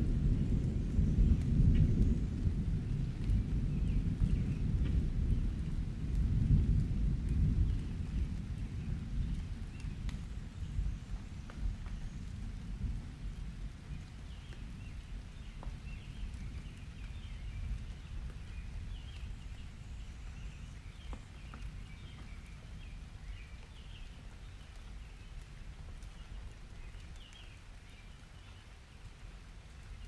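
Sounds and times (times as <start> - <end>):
distant thunder rumbling: 0.0 - 23.4
raindrops ticking: 0.0 - 30.0
steady rain: 0.0 - 30.0.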